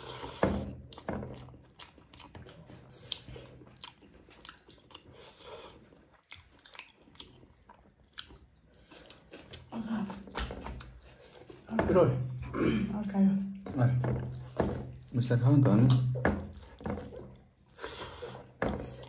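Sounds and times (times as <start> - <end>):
people chewing and biting food: 0.0 - 11.7, 15.8 - 19.0.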